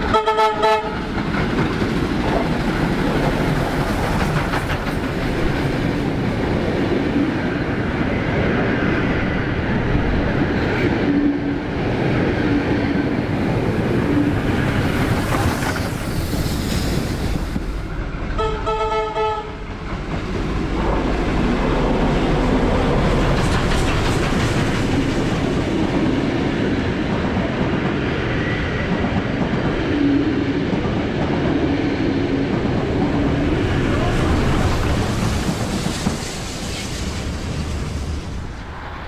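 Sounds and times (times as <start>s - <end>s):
train whistle: 0.0s - 1.1s, 18.4s - 19.6s
wheels clacking over rail joints: 0.0s - 7.8s, 19.7s - 29.9s
train rumbling past: 0.0s - 39.0s.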